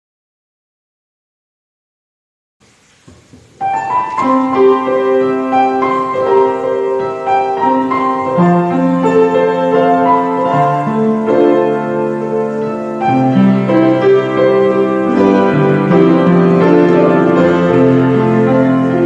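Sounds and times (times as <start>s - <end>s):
faint knocks: 3.0s - 4.3s
piano chords and melody: 3.2s - 19.0s.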